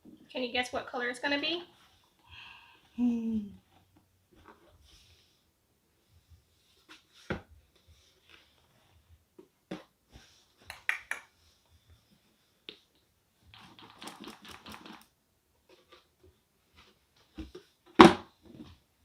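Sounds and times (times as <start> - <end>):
packaging rustling: 13.6 - 15.1.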